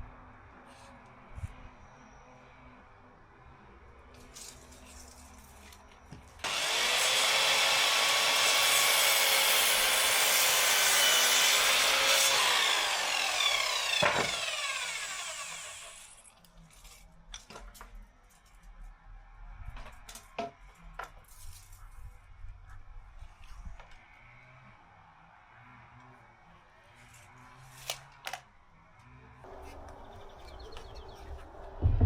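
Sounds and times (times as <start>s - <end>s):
power saw cutting wood: 6.4s - 16.3s.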